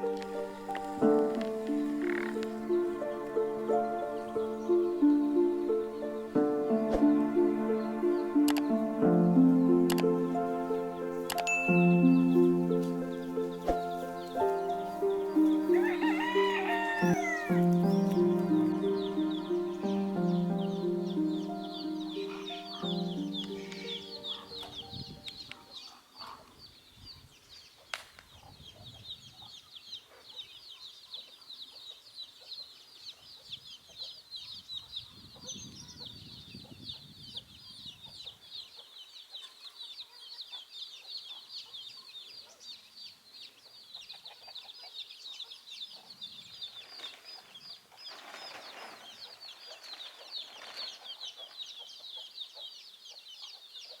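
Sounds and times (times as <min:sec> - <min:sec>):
chickens clucking: 0:00.0 - 0:11.5, 0:12.3 - 0:26.6, 0:43.6 - 0:46.2
chicks peeping: 0:00.0 - 0:54.0.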